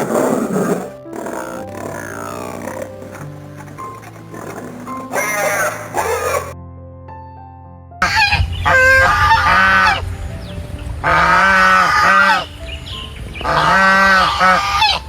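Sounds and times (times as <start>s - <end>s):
geese honking: 1.4s - 6.6s, 8.0s - 10.1s, 11.0s - 12.6s, 13.4s - 15.0s.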